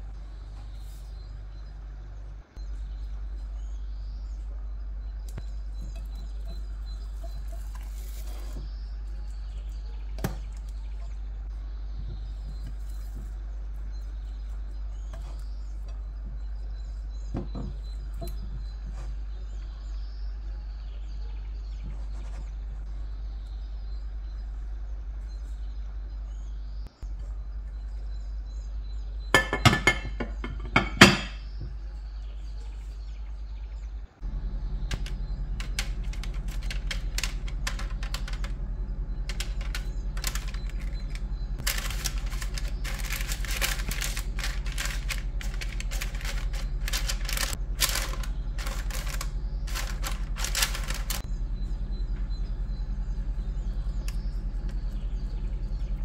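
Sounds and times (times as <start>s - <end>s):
bird chirps: 0.0s - 56.0s
low hum: 0.0s - 56.0s
pastry brush scratching parchment: 6.8s - 9.6s, 21.7s - 22.9s, 39.3s - 51.3s.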